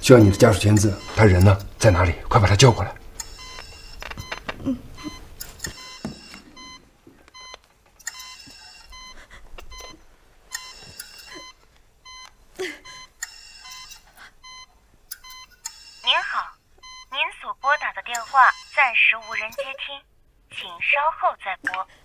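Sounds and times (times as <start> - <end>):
electronic beeping: 0.0 - 6.8, 15.2 - 20.0.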